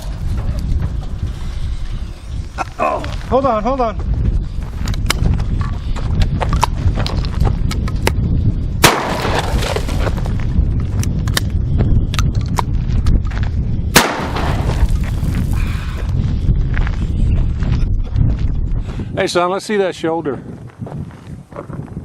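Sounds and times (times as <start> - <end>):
steady low rumble: 0.0 - 19.2
shotgun blasts with echo: 8.8 - 9.5, 13.9 - 14.7.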